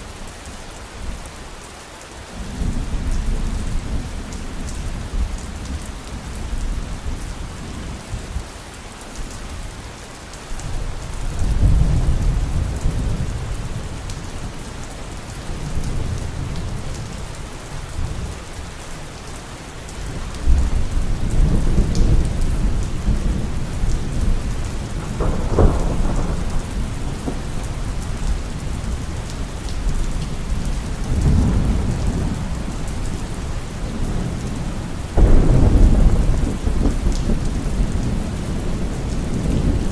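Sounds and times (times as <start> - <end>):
heavy rain: 0.0 - 39.9
rolling thunder: 11.3 - 14.6, 20.1 - 39.9.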